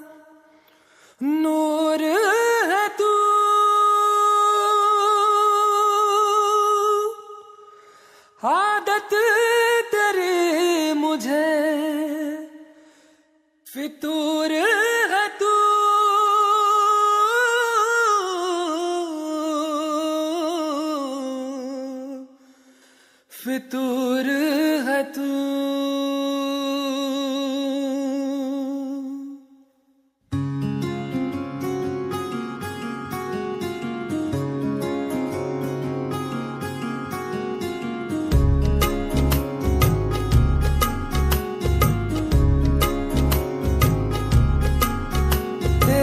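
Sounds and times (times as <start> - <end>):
person singing wordless vocal: 0.0 - 29.7, 38.8 - 46.0
light musical accompaniment: 38.1 - 46.0.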